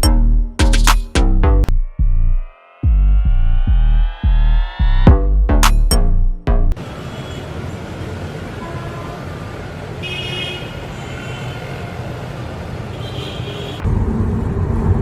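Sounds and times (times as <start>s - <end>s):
road traffic rumble: 6.7s - 15.0s.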